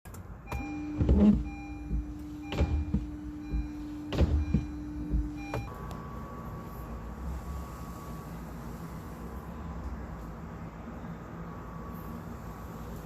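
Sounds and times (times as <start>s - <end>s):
wiper motor hum: 0.5s - 6.4s.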